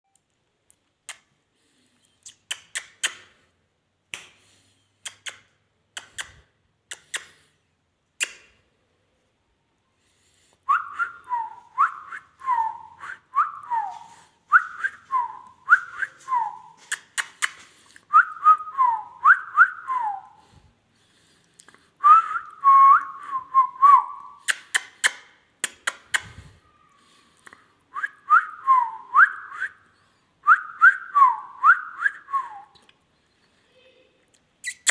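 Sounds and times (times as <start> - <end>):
sharp clicks: 5.0 - 7.5, 24.4 - 26.4.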